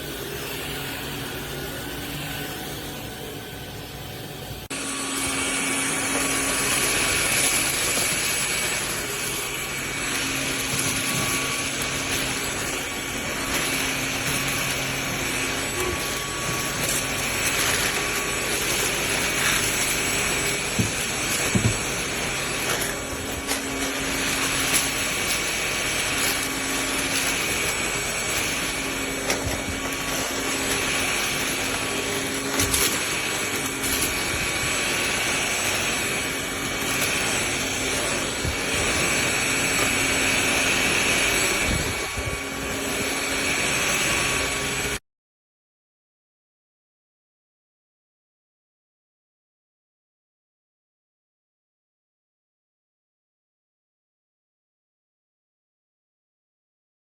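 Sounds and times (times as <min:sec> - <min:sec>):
vacuum cleaner motor whine: 0:00.0 - 0:45.0.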